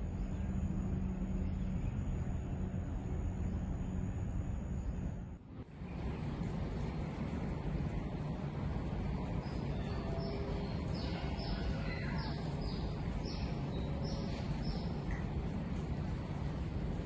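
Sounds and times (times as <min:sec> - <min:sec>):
low background rumble: 0:00.0 - 0:17.0
bird chirping: 0:09.2 - 0:15.3.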